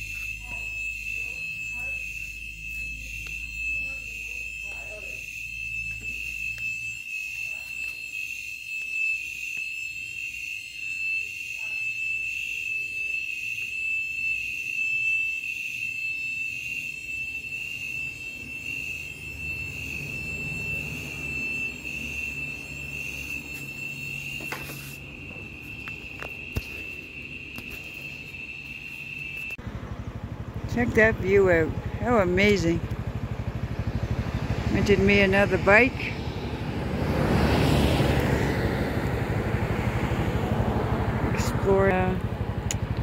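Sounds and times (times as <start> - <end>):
high-pitched alarm tone: 0.0 - 29.6, 30.3 - 42.6.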